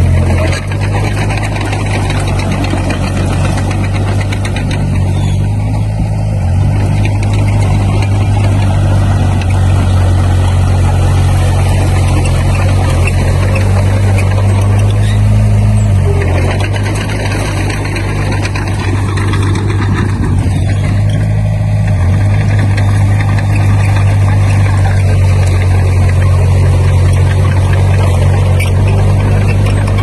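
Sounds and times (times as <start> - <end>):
bulldozer diesel engine under load: 0.0 - 30.0
rattly mechanical noise: 0.0 - 30.0.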